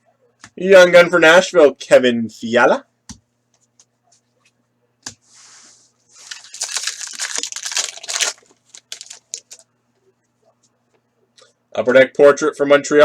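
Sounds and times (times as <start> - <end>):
card pack wrapper tearing: 6.2 - 9.6.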